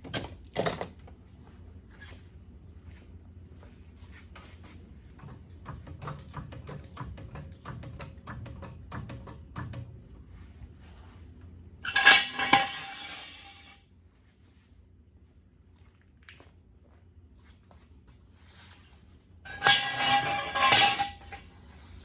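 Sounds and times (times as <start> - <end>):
metal tools clinking: 0.0 - 1.1, 11.9 - 13.7, 19.5 - 21.3
metallic clatter with clanks: 0.0 - 1.1, 11.9 - 13.7, 19.5 - 21.4.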